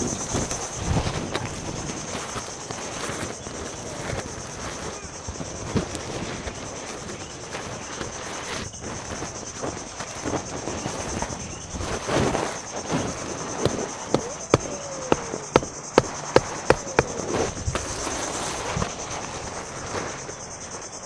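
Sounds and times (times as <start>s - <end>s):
insects chirring: 0.0s - 21.0s
sharp knocks: 13.6s - 17.8s.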